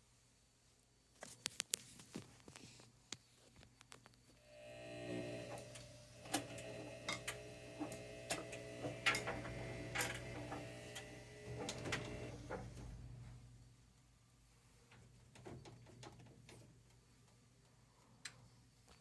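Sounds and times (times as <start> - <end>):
washer-dryer humming and whining: 4.4 - 13.5.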